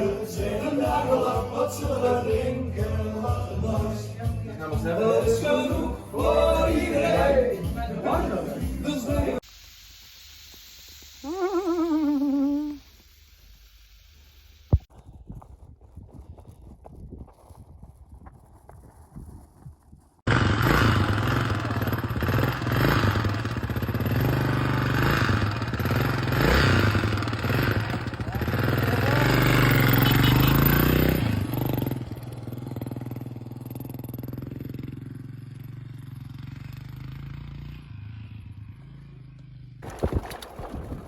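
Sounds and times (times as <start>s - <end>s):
motorcycle engine running: 17.8s - 41.0s.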